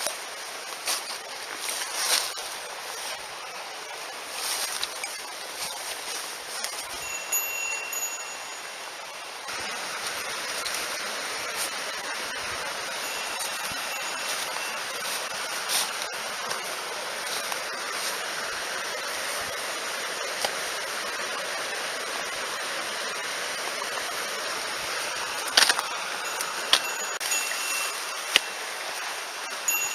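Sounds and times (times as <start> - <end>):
mountain stream rushing: 0.0 - 29.9.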